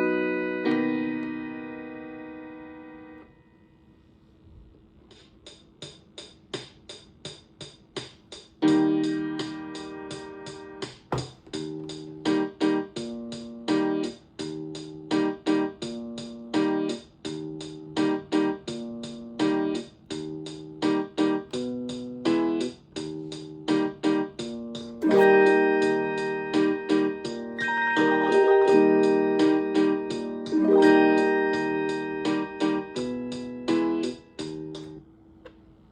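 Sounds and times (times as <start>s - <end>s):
electronic rhythm ticking: 23.0s - 35.0s
electronic chords: 23.6s - 35.0s.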